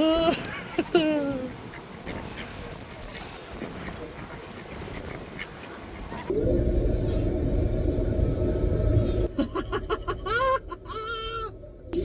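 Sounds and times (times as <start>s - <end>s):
low rumble with hum: 6.3s - 12.0s.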